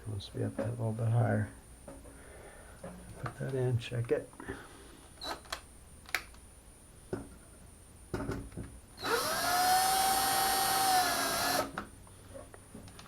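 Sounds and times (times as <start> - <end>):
power drill driving screw: 9.0 - 11.8.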